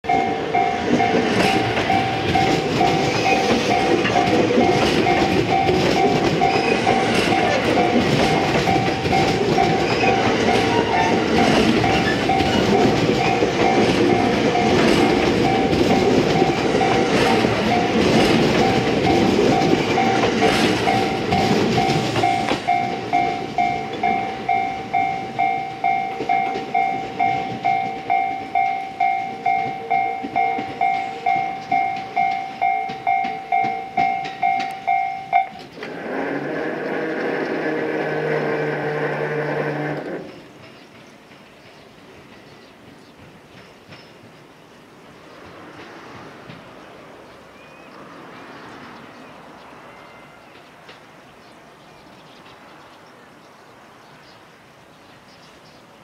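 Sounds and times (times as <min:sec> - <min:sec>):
level crossing bell ringing: 0:00.0 - 0:35.7
train wheels rumbling and clicking: 0:00.1 - 0:54.4.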